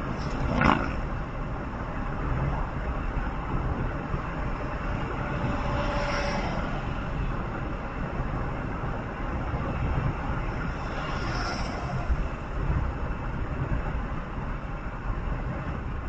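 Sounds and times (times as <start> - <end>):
road vehicle rumble: 0.0 - 16.0.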